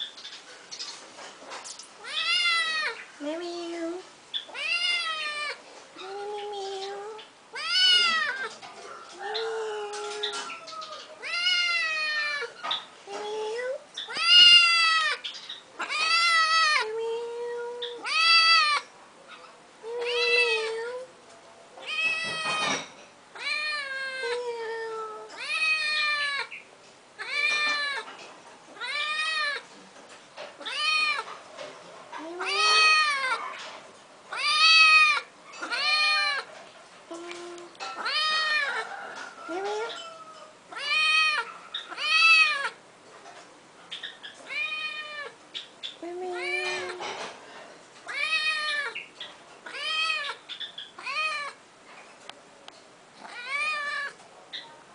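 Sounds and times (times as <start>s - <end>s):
cat meowing: 2.0s - 3.0s, 4.5s - 5.6s, 7.5s - 8.6s, 9.8s - 12.6s, 14.1s - 15.2s, 15.8s - 16.9s, 18.0s - 18.8s, 21.8s - 24.5s, 25.2s - 26.6s, 27.2s - 28.1s, 28.8s - 29.7s, 30.6s - 31.3s, 32.3s - 33.6s, 34.3s - 36.5s, 37.2s - 38.8s, 39.7s - 42.8s, 44.4s - 45.4s, 46.3s - 47.1s, 48.0s - 50.4s, 51.0s - 51.6s, 53.2s - 54.2s.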